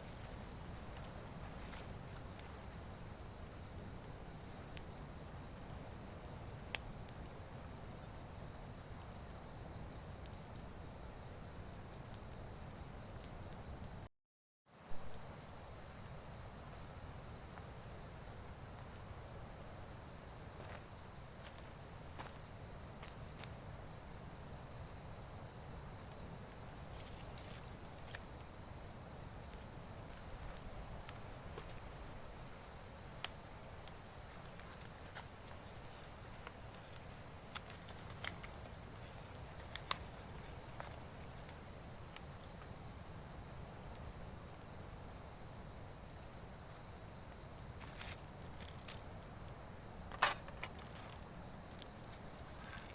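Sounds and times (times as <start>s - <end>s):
insects droning: 0.0s - 14.1s, 14.7s - 52.9s
faint clicks and ticks: 0.9s - 2.7s, 5.7s - 9.4s, 10.2s - 10.7s, 11.6s - 14.0s.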